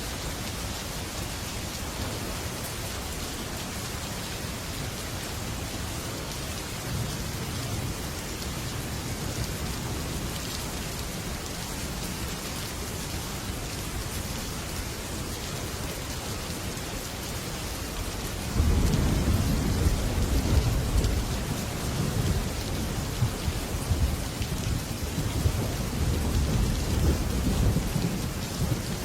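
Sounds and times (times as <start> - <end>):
heavy rain on a metal roof: 0.0 - 29.0
thunder rumbling: 18.6 - 29.0.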